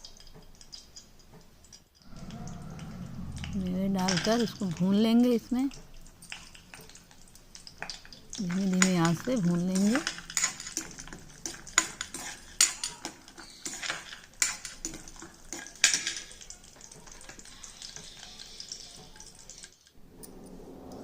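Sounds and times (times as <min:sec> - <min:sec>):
light sizzle: 0:00.0 - 0:21.0
spoon stirring nuts in a pan: 0:03.8 - 0:19.9.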